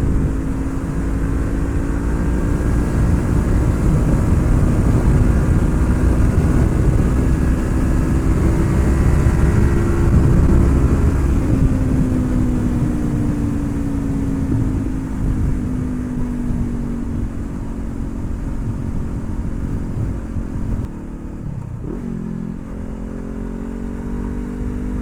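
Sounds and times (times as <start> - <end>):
motorcycle engine cruising: 0.0 - 25.0
rush of riding noise: 0.0 - 25.0.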